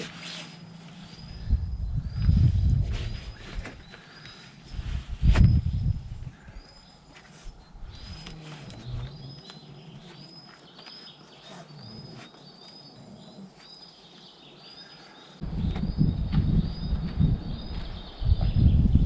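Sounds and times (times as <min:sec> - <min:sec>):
loud low rumble: 0:15.4 - 0:19.0.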